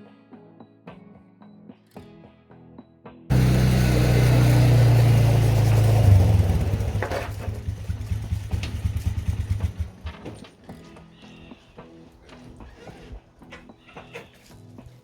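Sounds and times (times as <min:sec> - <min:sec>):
engine running: 0:03.3 - 0:10.5.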